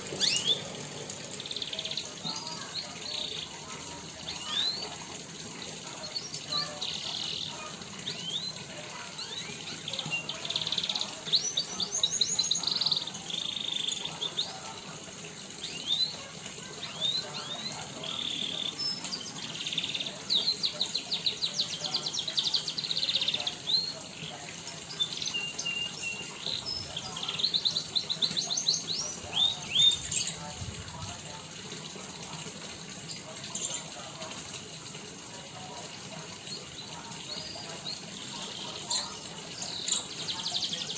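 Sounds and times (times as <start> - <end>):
songbirds singing and chirping: 0.0 - 40.9
fast rattling bird trills: 0.2 - 14.4.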